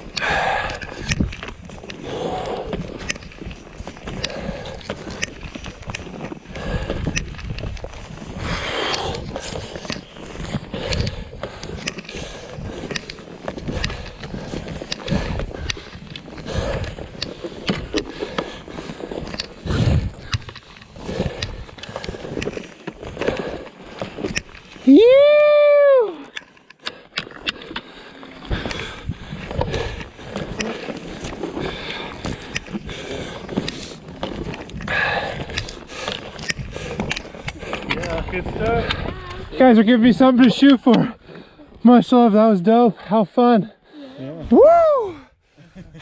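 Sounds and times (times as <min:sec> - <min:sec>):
skis scraping over snow: 0:00.0 - 0:25.3, 0:27.0 - 0:43.6
wind rumbling on microphone: 0:00.0 - 0:26.3, 0:27.8 - 0:40.4.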